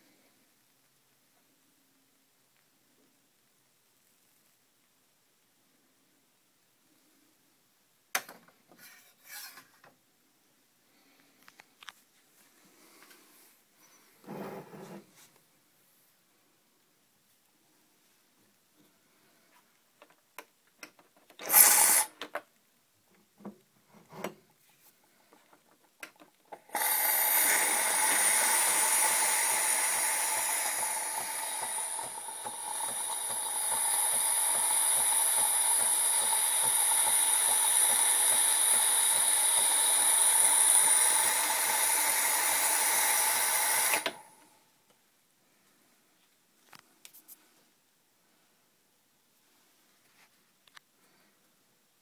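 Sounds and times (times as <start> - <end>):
coffee machine whirring and hissing: 21.4 - 22.1, 26.5 - 44.6.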